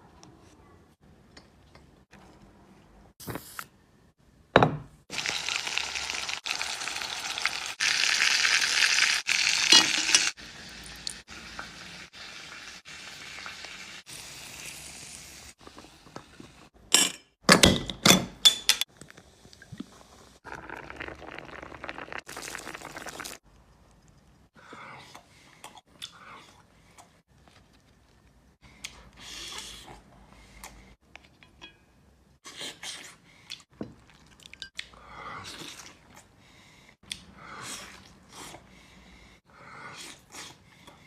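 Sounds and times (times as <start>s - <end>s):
food sizzling in a pan: 5.1s - 15.6s.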